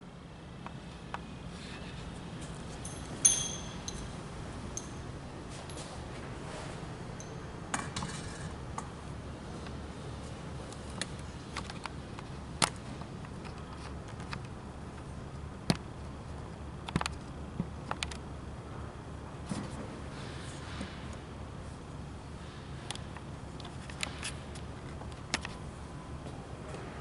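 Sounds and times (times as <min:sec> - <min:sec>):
steady low hum: 0:00.0 - 0:27.0
metallic clicks and clinks: 0:02.8 - 0:05.1.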